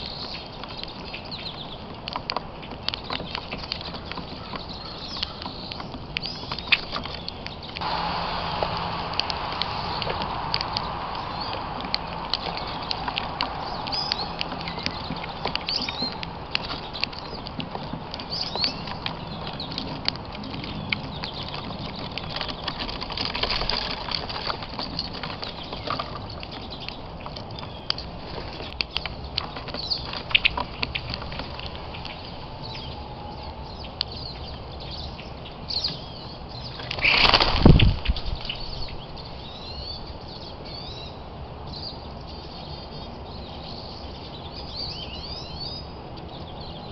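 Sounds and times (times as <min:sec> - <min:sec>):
birds tapping and scraping: 0:00.0 - 0:39.3
loud whoosh falling in pitch: 0:07.8 - 0:15.7.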